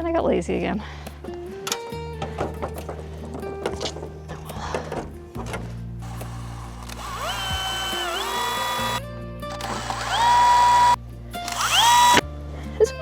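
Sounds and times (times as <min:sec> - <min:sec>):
power drill whining: 0:06.0 - 0:12.2.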